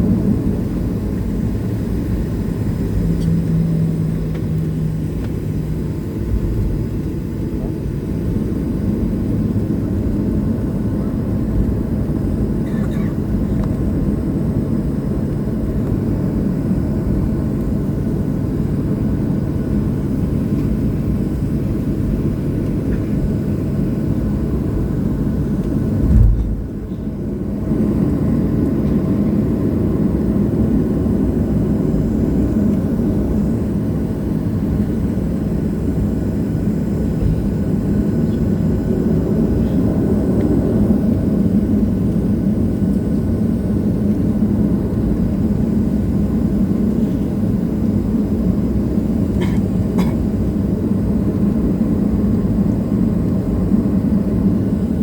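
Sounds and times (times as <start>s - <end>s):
airplane cabin engine rumble: 0.0s - 55.0s
low thump: 26.0s - 26.8s.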